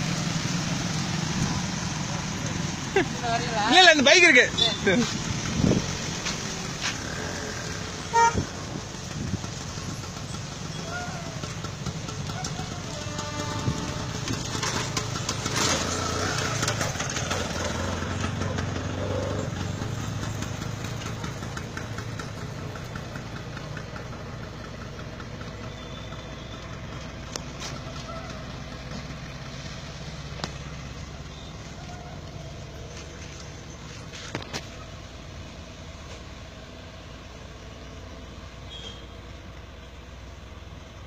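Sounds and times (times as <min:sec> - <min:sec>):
diesel locomotive rumble: 0:00.0 - 0:41.0
train wheel noise: 0:03.0 - 0:35.0.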